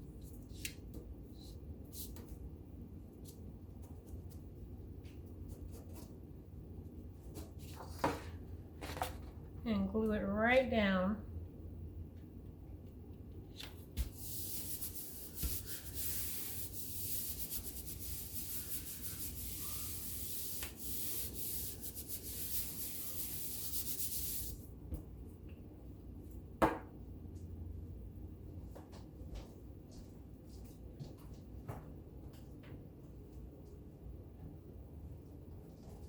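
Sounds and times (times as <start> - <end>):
paper rubbed by hand: 14.0 - 24.6.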